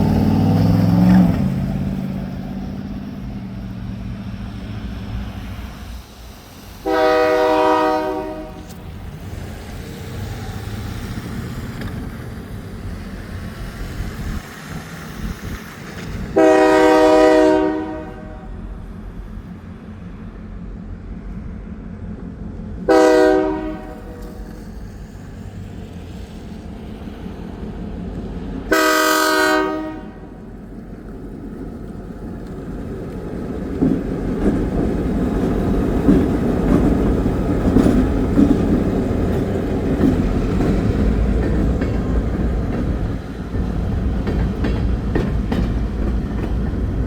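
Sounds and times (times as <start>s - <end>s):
train rumble: 0.0s - 47.0s
locomotive air horn blasts: 6.8s - 8.8s, 16.4s - 18.6s, 22.9s - 24.4s, 28.7s - 30.4s.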